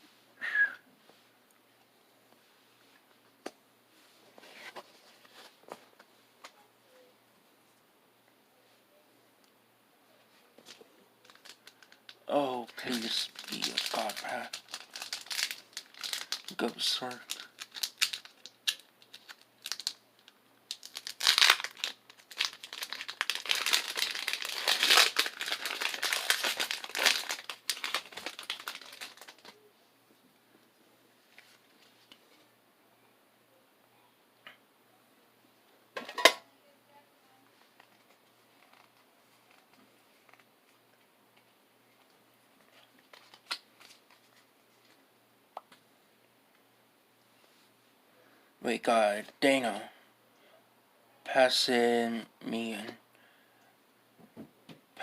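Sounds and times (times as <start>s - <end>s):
foil wrapper crinkling: 10.7s - 29.6s, 42.9s - 45.0s.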